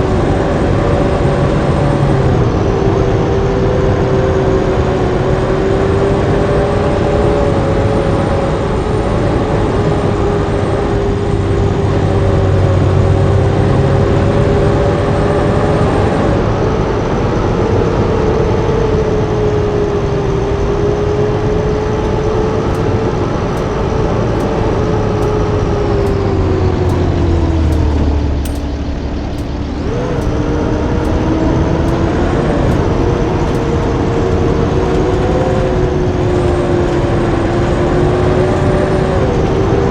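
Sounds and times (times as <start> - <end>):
bus diesel engine running: 0.0 - 18.6, 19.2 - 39.9
steady whine: 21.7 - 39.9
faint regular clicks: 22.0 - 39.8.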